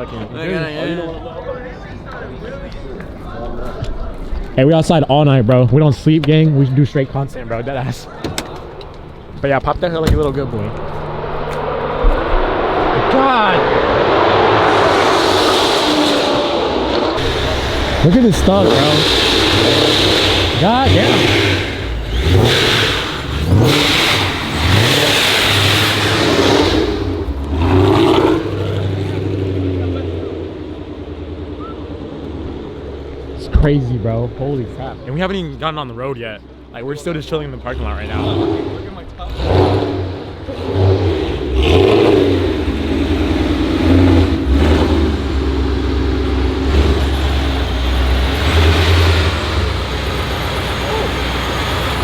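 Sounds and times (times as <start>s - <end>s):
car engine revving: 7.3s - 52.0s.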